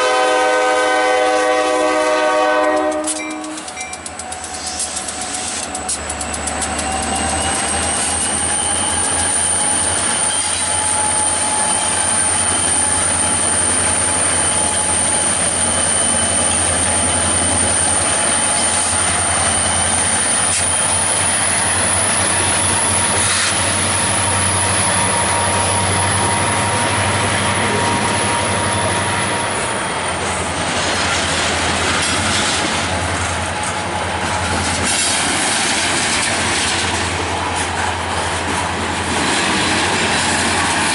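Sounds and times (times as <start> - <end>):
freight train rumble and wheel clatter: 0.0 - 40.9.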